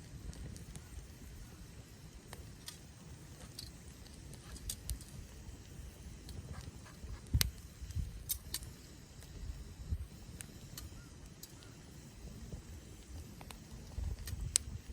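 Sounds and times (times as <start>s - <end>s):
sharp pops of fire: 0.0s - 14.9s
wood fire crackling: 0.0s - 14.9s.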